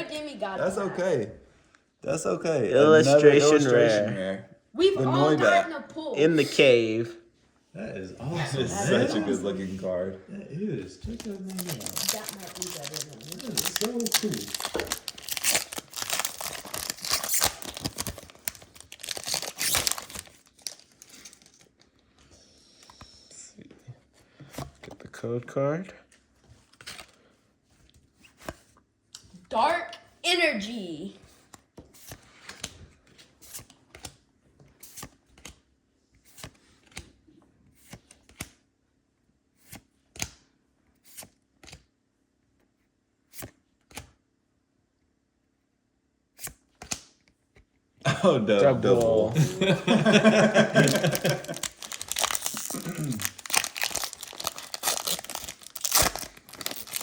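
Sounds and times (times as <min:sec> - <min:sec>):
foil wrapper crinkling and tearing: 0:11.1 - 0:21.8, 0:50.0 - 0:57.0
trading cards snapping: 0:46.4 - 0:47.2.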